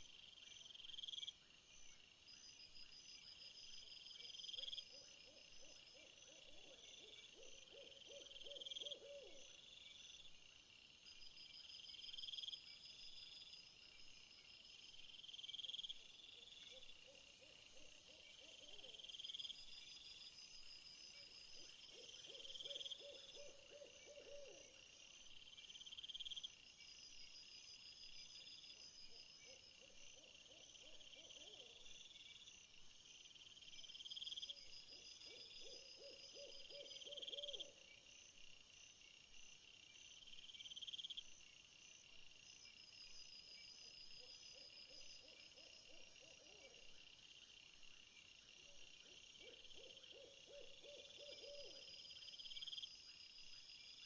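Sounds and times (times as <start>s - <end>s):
insect chorus trilling: 11.2s - 27.0s, 33.3s - 54.0s.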